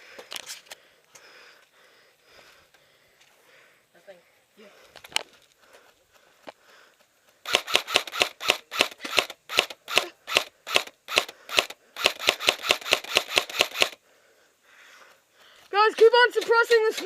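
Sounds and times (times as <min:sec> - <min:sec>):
airsoft rifle shots: 0:07.4 - 0:14.0.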